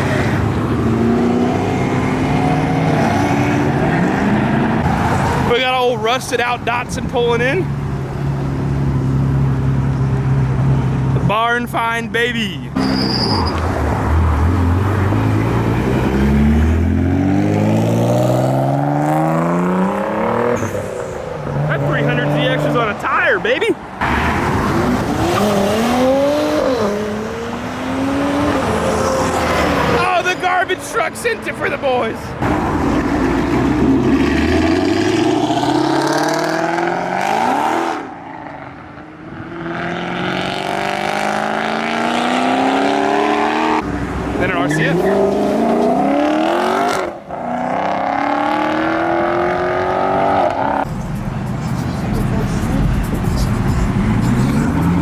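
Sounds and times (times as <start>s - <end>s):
car engine revving: 0.0s - 5.9s, 12.8s - 31.8s, 32.4s - 55.0s.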